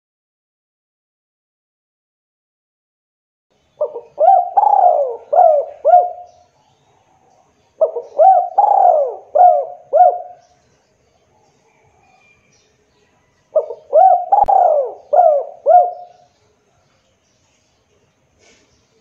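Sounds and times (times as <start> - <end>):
dove cooing: 3.8 - 6.5, 7.1 - 10.5, 13.5 - 16.3.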